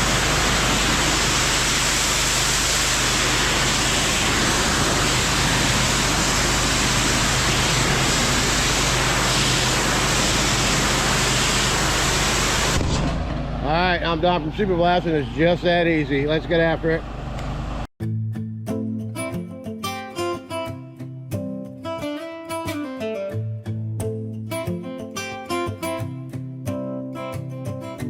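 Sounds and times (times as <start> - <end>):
pressure washer water hiss: 0.0 - 12.8.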